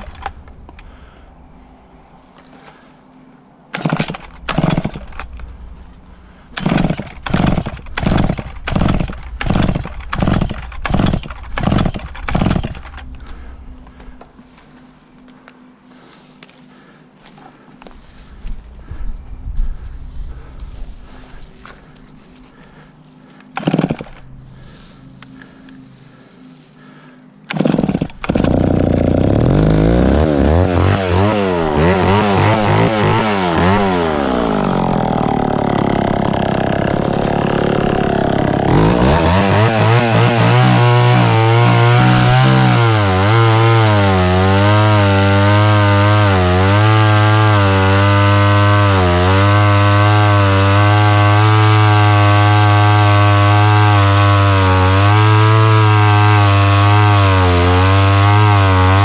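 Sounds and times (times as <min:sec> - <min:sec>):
chainsaw revving and cutting wood: 0:00.0 - 0:01.2, 0:03.7 - 0:14.0, 0:23.6 - 0:24.8, 0:27.5 - 0:59.0.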